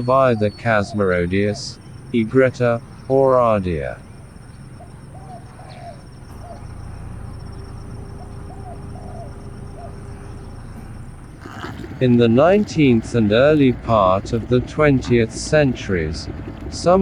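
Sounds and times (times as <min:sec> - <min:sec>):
bird's soft low call: 0:00.0 - 0:12.0
low background noise: 0:00.0 - 0:17.0.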